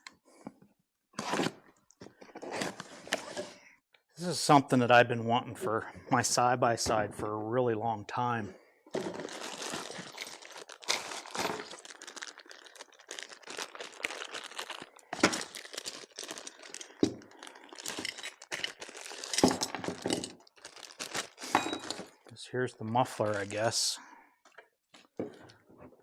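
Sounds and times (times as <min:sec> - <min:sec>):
plastic packaging crinkling: 0:09.0 - 0:22.2.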